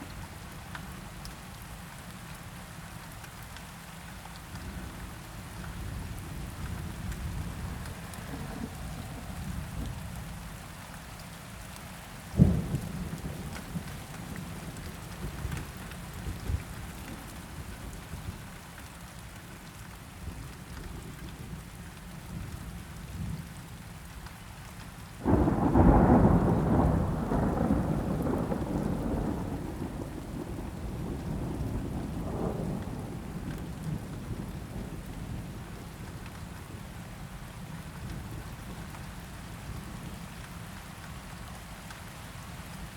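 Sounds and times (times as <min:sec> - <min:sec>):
steady rain: 0:00.0 - 0:42.9
loud thunderclap rumbling: 0:25.2 - 0:35.0
low thud of thunder: 0:25.2 - 0:35.5.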